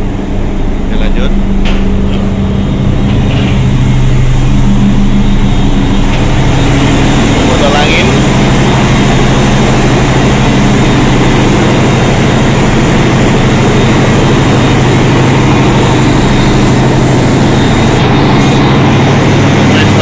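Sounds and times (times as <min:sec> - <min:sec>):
diesel machinery running: 0:00.0 - 0:20.0.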